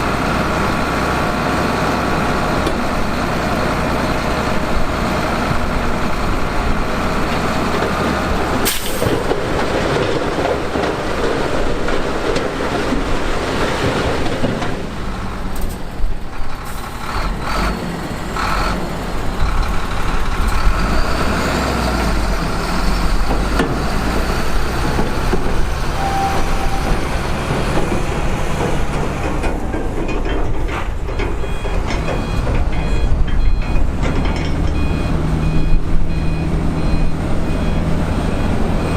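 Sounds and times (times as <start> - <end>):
diesel earthmoving machinery running: 0.0 - 38.9
reversing alarm beeping: 25.9 - 28.2, 31.4 - 38.9.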